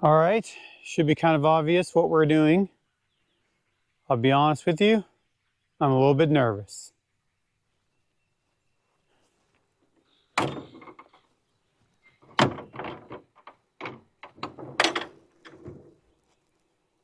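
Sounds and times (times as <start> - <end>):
rattling knocks: 10.4 - 11.2, 12.2 - 16.0.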